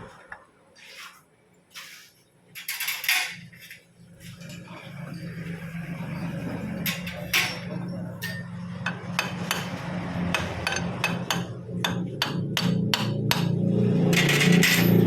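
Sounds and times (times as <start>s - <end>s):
hammer striking metal: 6.9s - 15.0s.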